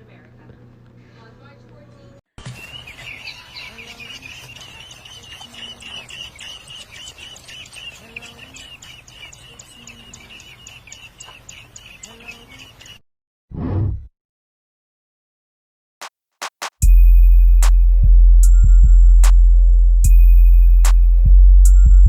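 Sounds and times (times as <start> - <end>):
pet bird chirping: 2.4 - 13.0.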